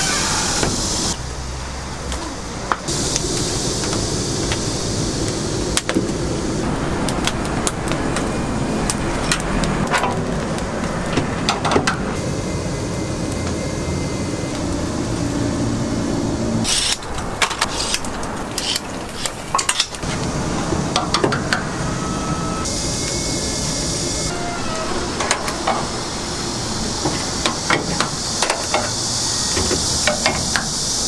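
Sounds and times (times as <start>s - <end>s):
low machine hum: 2.9s - 9.8s, 12.0s - 16.7s.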